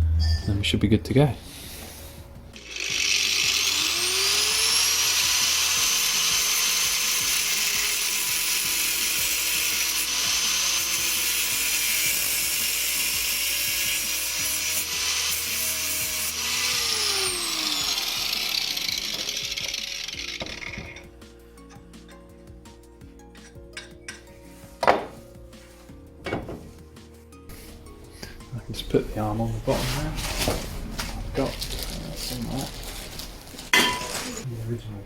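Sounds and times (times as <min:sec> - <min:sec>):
grinder cutting: 0:02.6 - 0:21.1.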